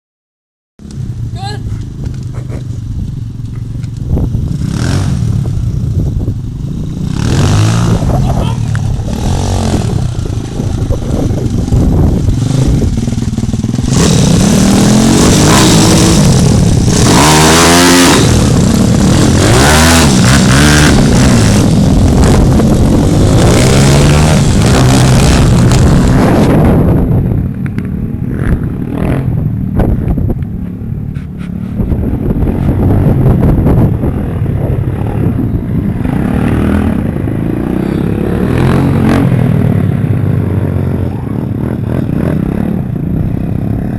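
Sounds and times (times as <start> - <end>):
pit bike engines revving: 1.0 - 27.0, 27.6 - 43.9.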